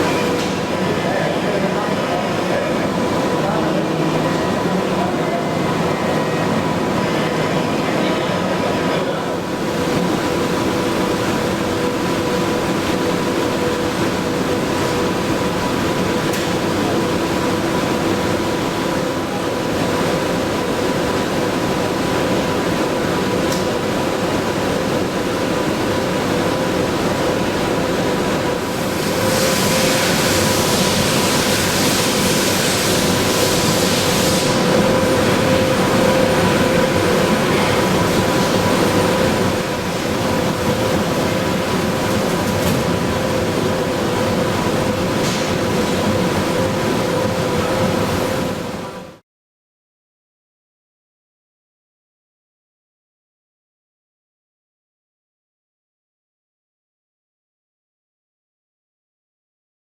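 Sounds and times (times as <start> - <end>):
hiss: 28.8 - 34.7.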